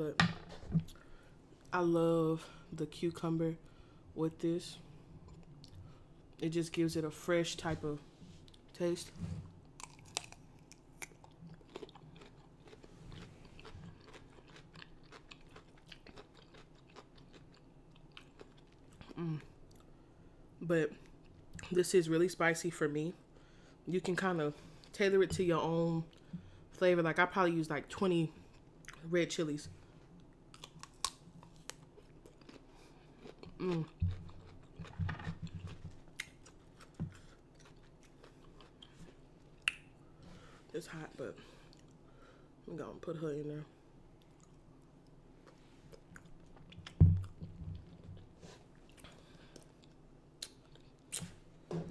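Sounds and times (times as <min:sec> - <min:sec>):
chewing raw cucumber: 0:09.8 - 0:19.9, 0:30.5 - 0:39.8
wet mouth clicks: 0:39.6 - 0:39.9.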